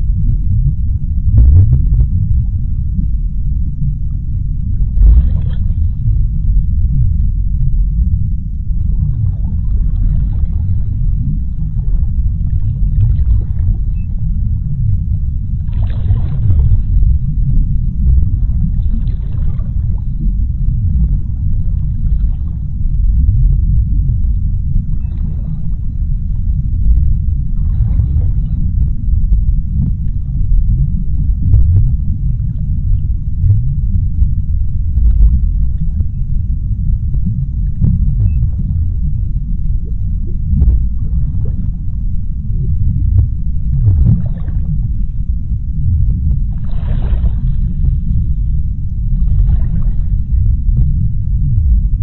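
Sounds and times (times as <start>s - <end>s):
deep underwater rumble: 0.0s - 52.0s
rushing water swells: 46.5s - 47.9s.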